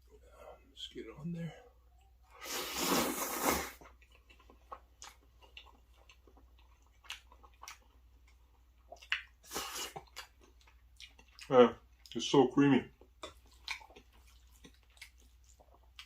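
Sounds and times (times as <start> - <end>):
close chewing of food: 1.8 - 16.0
wet mouth clicks and smacks: 8.9 - 10.3.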